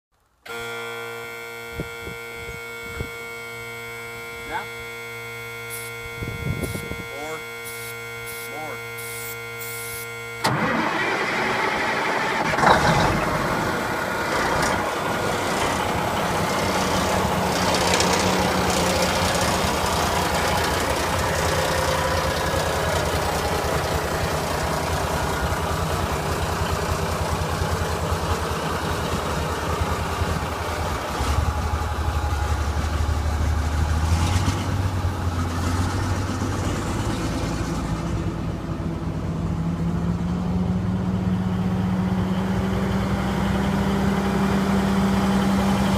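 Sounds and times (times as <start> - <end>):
diesel truck engine: 0.3 - 45.9.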